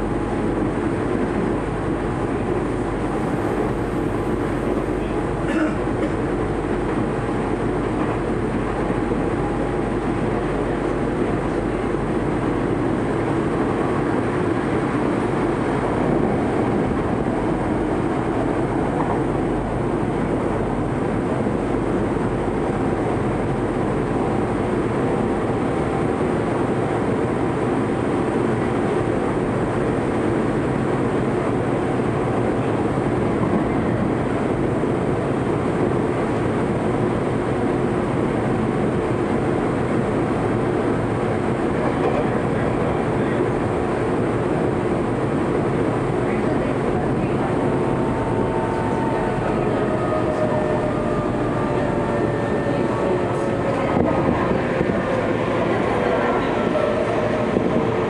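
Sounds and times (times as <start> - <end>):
train running noise inside car: 0.0 - 58.0.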